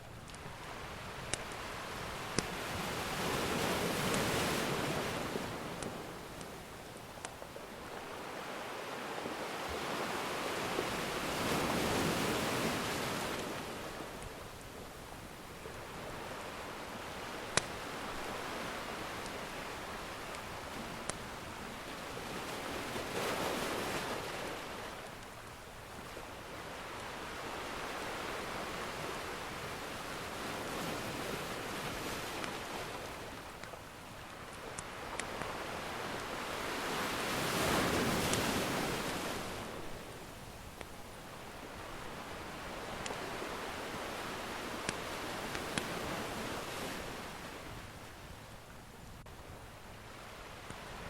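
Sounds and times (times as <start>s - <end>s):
ocean waves breaking: 0.0s - 48.2s
wood fire crackling: 17.3s - 21.2s, 42.8s - 46.1s.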